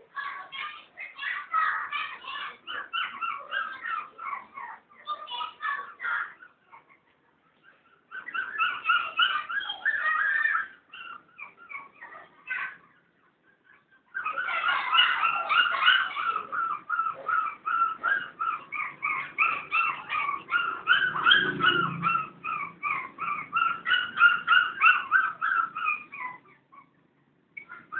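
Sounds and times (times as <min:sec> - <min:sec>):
dog whimpering yips: 0:01.6 - 0:27.0, 0:27.6 - 0:27.9.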